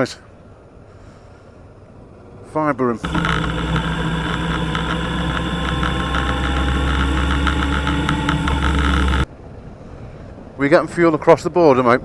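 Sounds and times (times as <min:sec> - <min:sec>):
fast regular ticking: 0:03.0 - 0:09.3.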